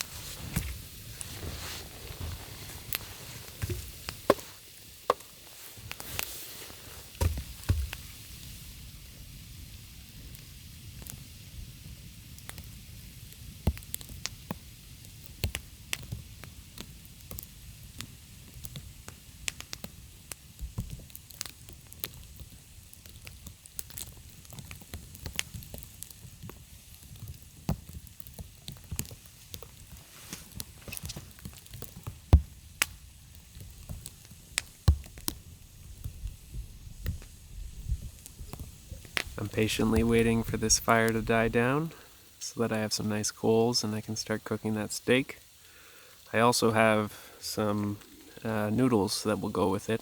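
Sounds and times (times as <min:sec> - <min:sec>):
campfire crackling and popping: 0:00.0 - 0:50.0
low steady rumble: 0:35.4 - 0:42.0.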